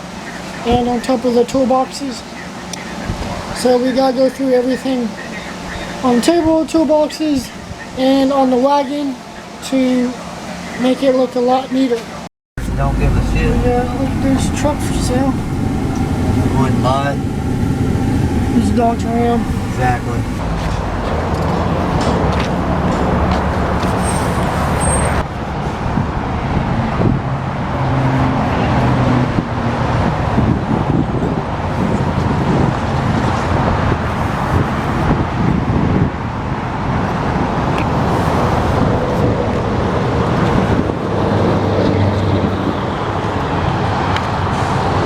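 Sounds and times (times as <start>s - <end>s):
vehicle engine hum: 12.6s - 35.5s
tyre road noise: 12.6s - 45.0s.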